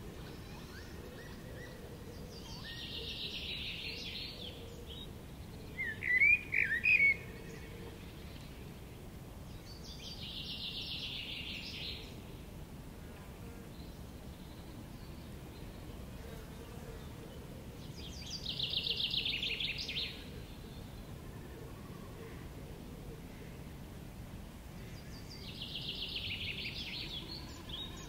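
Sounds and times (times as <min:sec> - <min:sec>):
songbirds trilling: 0:00.0 - 0:12.5, 0:24.7 - 0:28.0
wind: 0:00.0 - 0:28.0.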